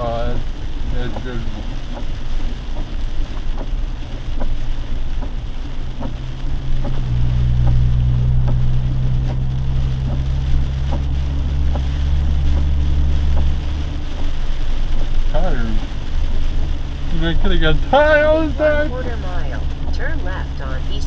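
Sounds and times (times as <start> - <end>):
engine and road drone: 0.0 - 21.0
hiss of rain and water: 0.0 - 21.0
faint ticks: 0.9 - 15.2.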